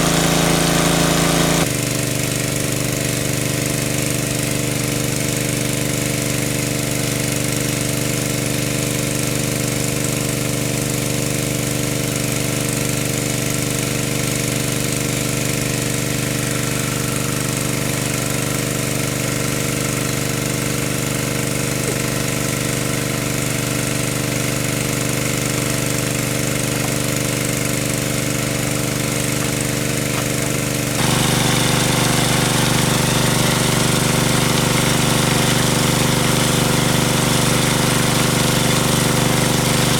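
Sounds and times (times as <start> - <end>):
small engine knocking: 0.0 - 1.7, 15.8 - 39.9.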